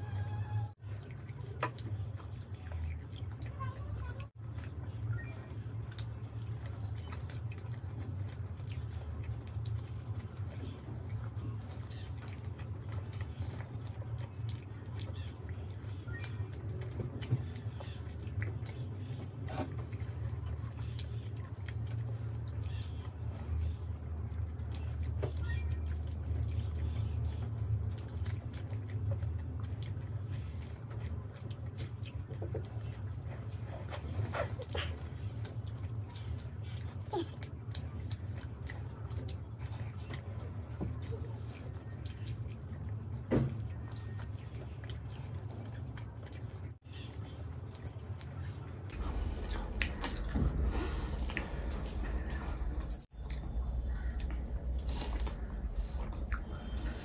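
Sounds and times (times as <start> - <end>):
wet chewing: 0.0 - 57.0
steady low hum: 25.8 - 57.0.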